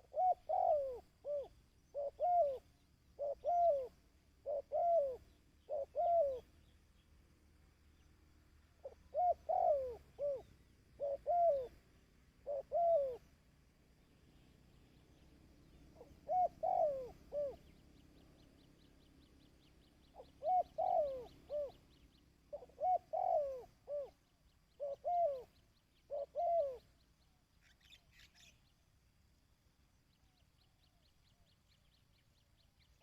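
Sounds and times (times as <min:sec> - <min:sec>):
dove cooing: 0:00.0 - 0:06.6, 0:08.8 - 0:13.4, 0:14.9 - 0:18.0, 0:20.0 - 0:27.0.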